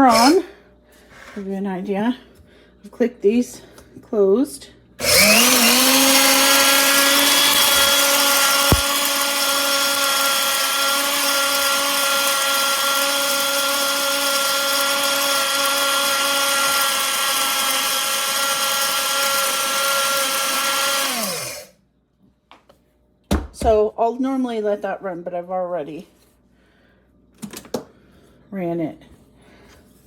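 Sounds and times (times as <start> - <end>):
grain mill motor whine: 5.0 - 21.7.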